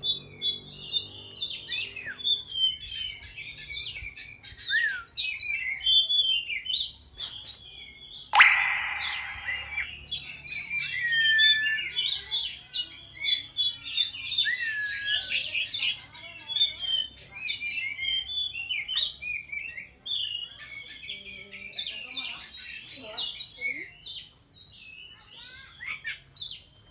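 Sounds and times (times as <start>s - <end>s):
bird singing chirps and whistles: 0.4s - 16.0s, 16.6s - 26.6s
burst of noise: 8.4s - 9.9s.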